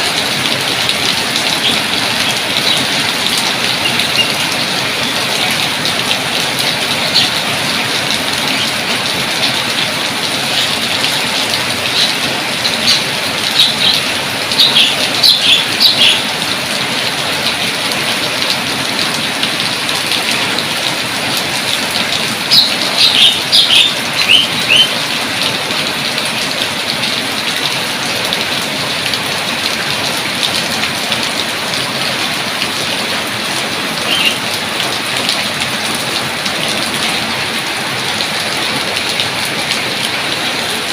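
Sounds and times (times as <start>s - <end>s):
heavy rain falling: 0.0s - 40.9s
bird chirping: 3.8s - 4.4s, 12.8s - 16.2s, 22.5s - 25.0s, 34.1s - 34.4s.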